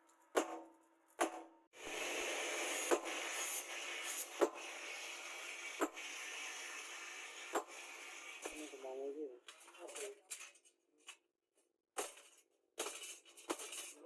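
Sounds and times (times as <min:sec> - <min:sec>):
rasping abrasive rubbing: 0:01.8 - 0:09.0.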